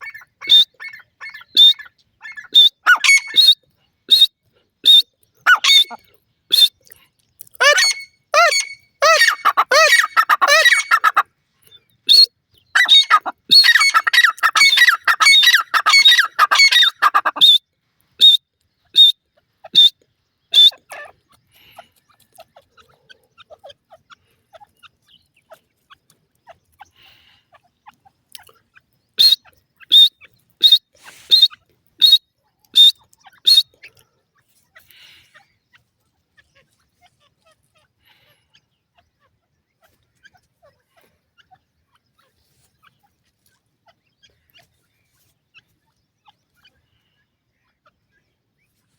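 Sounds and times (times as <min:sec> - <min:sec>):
harsh game bird calls: 0:00.0 - 0:06.8, 0:07.6 - 0:11.2, 0:12.0 - 0:17.6, 0:18.2 - 0:25.4, 0:28.7 - 0:34.0.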